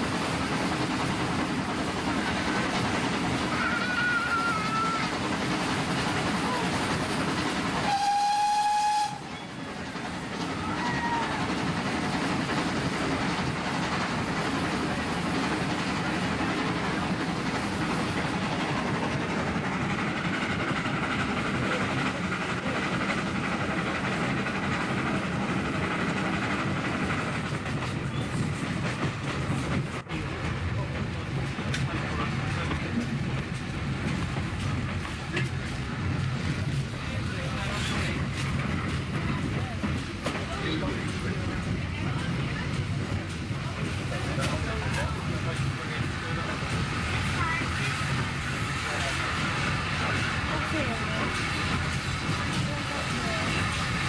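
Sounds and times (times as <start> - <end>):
train rumble with wheel clatter: 0.0 - 54.0
steam whistle: 7.8 - 9.3.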